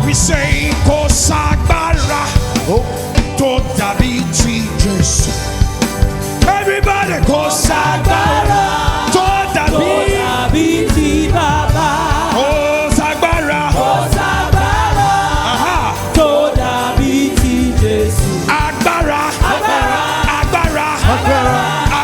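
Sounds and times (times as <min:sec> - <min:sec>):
bass: 0:00.0 - 0:22.0
drums: 0:00.0 - 0:22.0
choir singing: 0:06.7 - 0:22.0.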